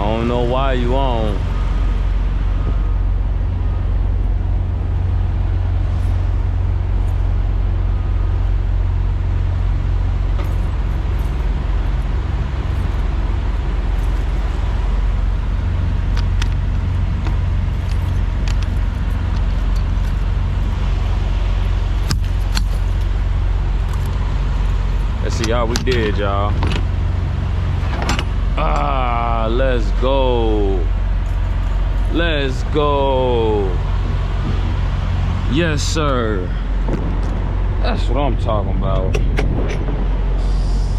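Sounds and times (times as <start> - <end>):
truck engine and road rumble: 0.0 - 40.9
light clicks or rattles: 16.0 - 20.9, 27.8 - 28.9.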